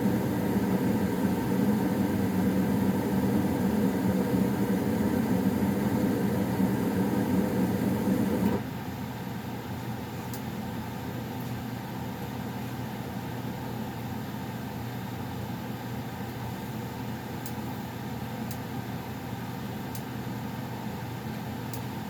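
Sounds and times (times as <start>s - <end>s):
furnace blower humming: 0.0s - 8.9s.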